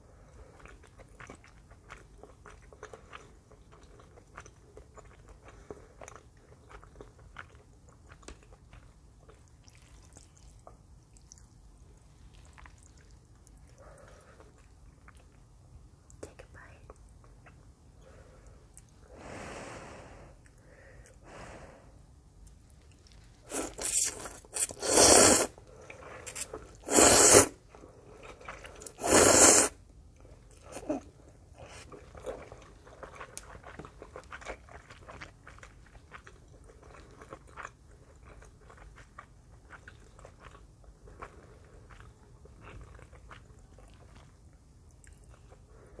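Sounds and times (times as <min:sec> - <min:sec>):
wet chewing: 0:00.4 - 0:15.5, 0:31.6 - 0:45.9
slurping noodles: 0:23.5 - 0:27.6, 0:28.3 - 0:29.8.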